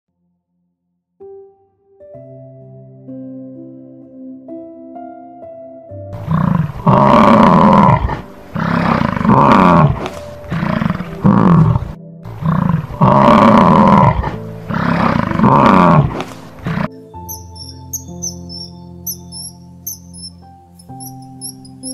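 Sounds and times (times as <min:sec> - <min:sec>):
soft background music: 0:01.2 - 0:21.9
big cat roaring: 0:06.2 - 0:16.9.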